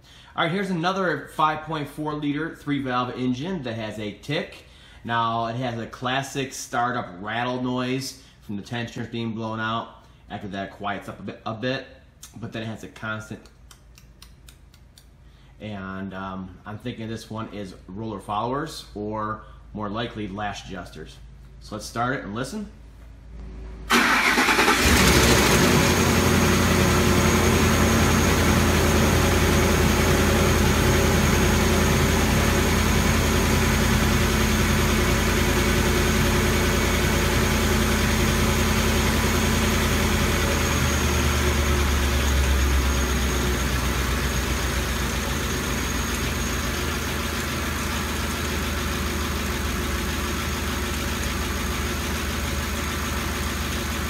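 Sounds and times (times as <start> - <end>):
engine idling: 23.9 - 54.0.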